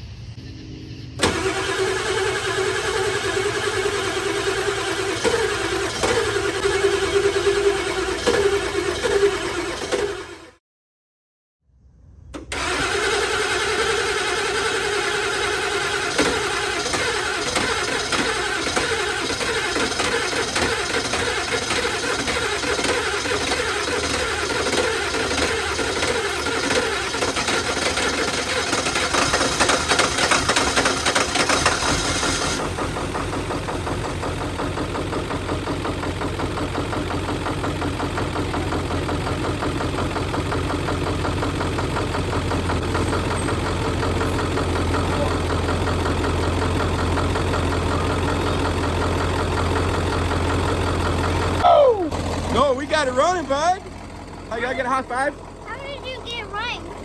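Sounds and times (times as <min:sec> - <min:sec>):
diesel engine cranking on starter: 0:01.2 - 0:10.6, 0:12.3 - 0:57.0
diesel engine idling: 0:01.2 - 0:10.6, 0:12.4 - 0:57.0.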